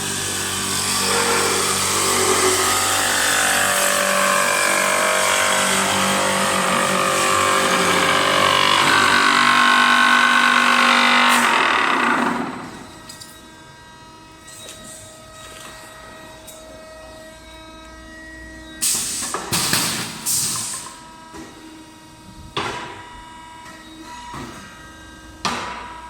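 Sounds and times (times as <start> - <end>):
lathe machine whine: 0.0 - 18.9.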